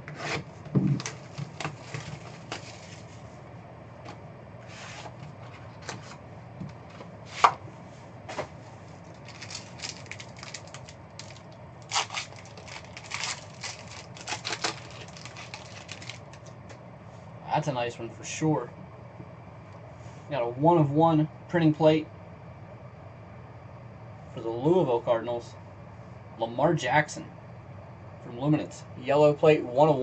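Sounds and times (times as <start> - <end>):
packaging being opened: 9.1 - 16.5.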